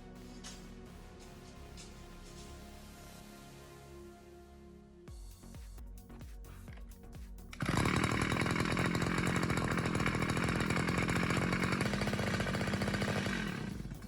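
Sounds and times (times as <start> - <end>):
two-stroke pump engine buzzing: 7.5 - 14.0.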